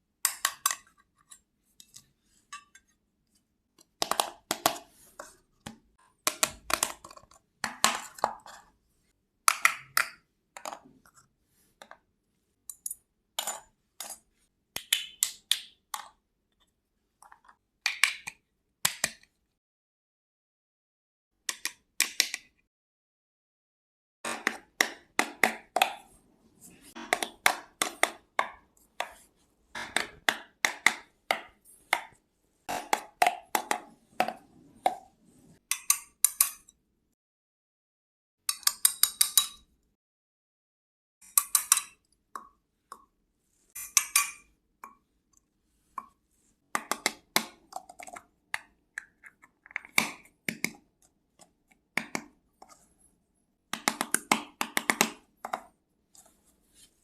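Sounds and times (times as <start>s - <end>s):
toy kitchen pieces clicking: 0.3s - 2.0s, 35.7s - 36.7s, 38.5s - 39.6s, 41.2s - 42.0s, 43.8s - 44.5s.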